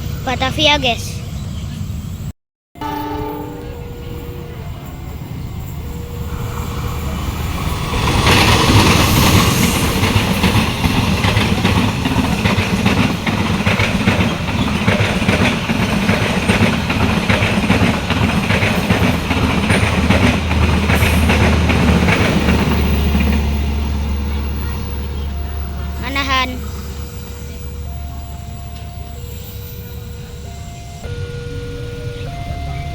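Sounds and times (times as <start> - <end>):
train rumble: 0.0 - 32.9
train wheels clattering over rail joints: 5.9 - 29.1.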